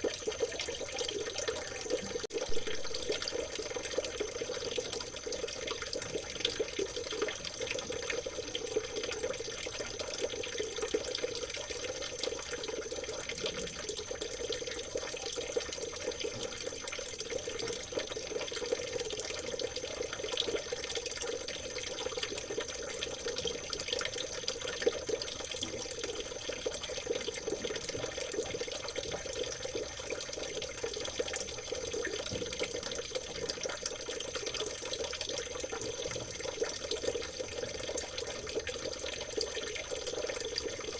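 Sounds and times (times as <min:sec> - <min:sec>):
stream babbling over stones: 0:00.0 - 0:10.8.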